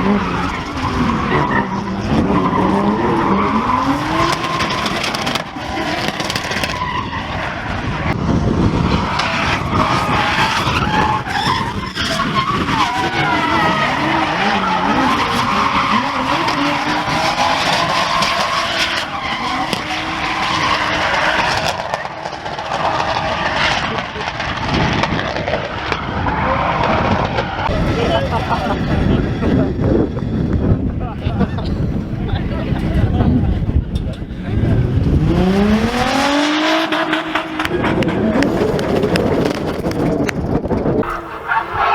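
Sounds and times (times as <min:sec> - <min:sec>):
car engines revving: 0:00.0 - 0:41.9
tyres squealing: 0:09.2 - 0:21.8.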